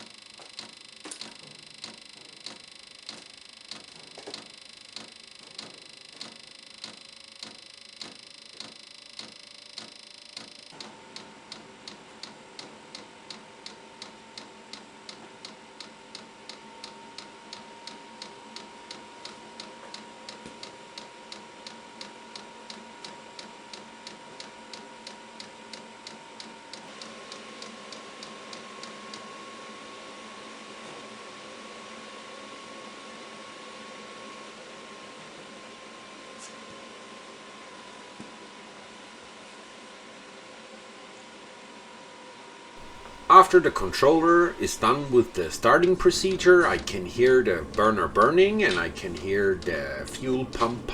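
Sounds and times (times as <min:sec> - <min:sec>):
heater whine: 0:00.0 - 0:50.9
fuel pump ticking: 0:42.8 - 0:50.9.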